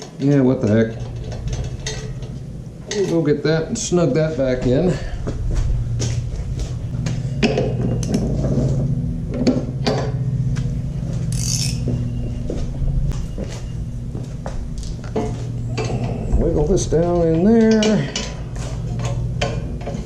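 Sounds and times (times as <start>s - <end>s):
steady low hum: 0.0s - 20.0s
metal hand tools clinking: 11.3s - 11.9s.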